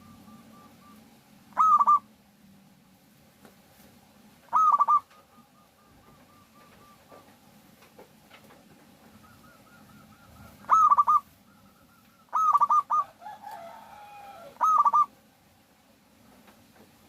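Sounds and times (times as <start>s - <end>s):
dove stuttering coos: 0.0s - 2.1s, 4.4s - 7.4s, 8.9s - 15.2s
low drawn-out dove call: 0.0s - 2.1s, 4.5s - 7.2s, 9.1s - 15.2s.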